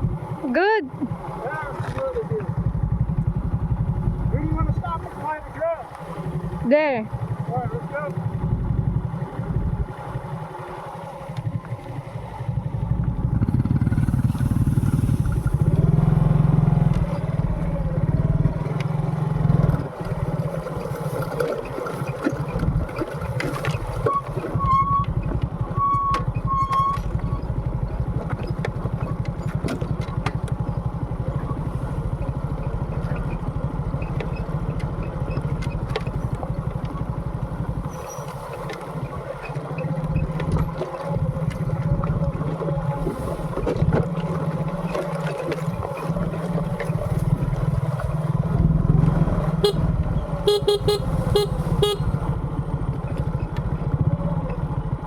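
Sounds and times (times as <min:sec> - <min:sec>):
motorcycle engine running: 0:00.0 - 0:55.0
short horn beeps: 0:49.6 - 0:52.2.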